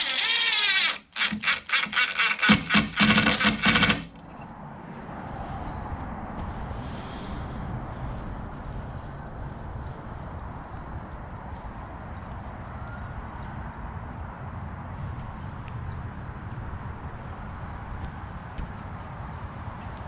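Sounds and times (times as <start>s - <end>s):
cricket chirping: 0.0s - 20.0s.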